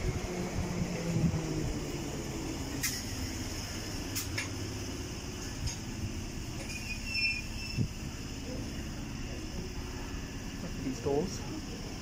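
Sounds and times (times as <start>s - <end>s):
underground train rumbling: 0.0s - 12.0s
high squeaks: 6.6s - 7.9s
brake squeal: 6.6s - 8.1s.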